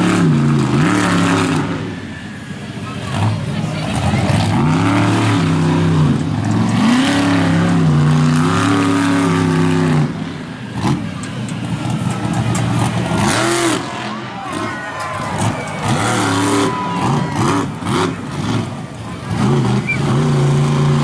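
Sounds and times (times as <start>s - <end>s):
truck engine revving hard: 0.0s - 21.0s.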